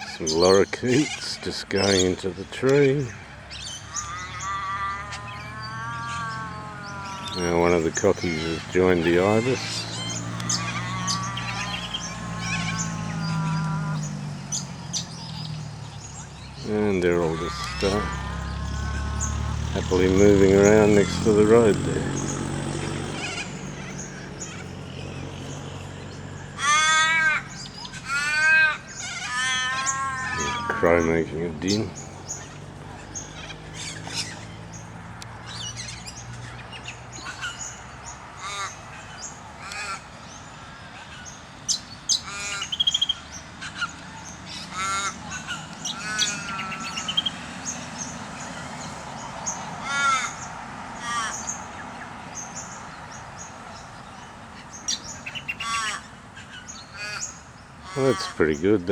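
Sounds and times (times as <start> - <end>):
birds chirping and trilling: 0.0 - 58.9
raven cawing harshly: 3.5 - 51.8, 54.8 - 58.6.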